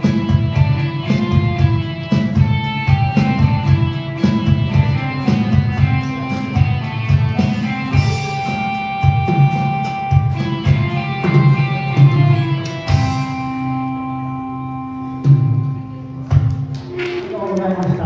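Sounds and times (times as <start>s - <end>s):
ringing guitar chord: 0.0s - 16.1s
rock band playing: 0.0s - 17.2s.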